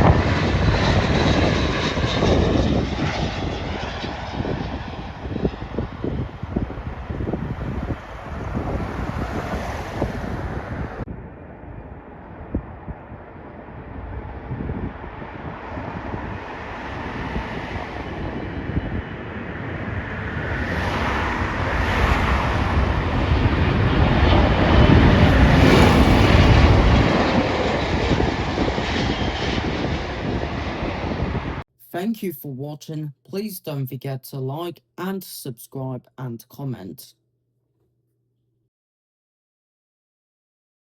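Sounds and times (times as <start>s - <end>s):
jet airliner passing: 0.0s - 31.6s.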